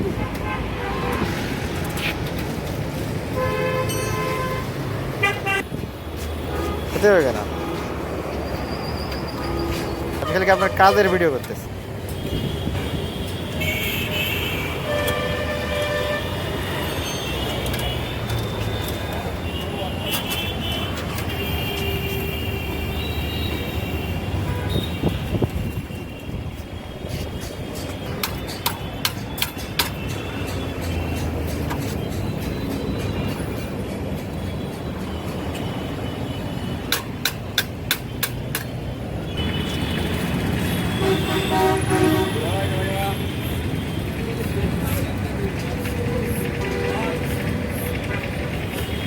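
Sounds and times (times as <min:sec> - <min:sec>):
street traffic rumbling: 0:00.0 - 0:49.0
high vehicle horn: 0:03.3 - 0:05.8, 0:06.4 - 0:08.0, 0:12.1 - 0:18.3, 0:19.4 - 0:26.6, 0:39.3 - 0:44.2
low vehicle horn: 0:12.1 - 0:18.2, 0:39.3 - 0:44.2
sharp metal taps: 0:27.8 - 0:33.2, 0:36.9 - 0:38.8.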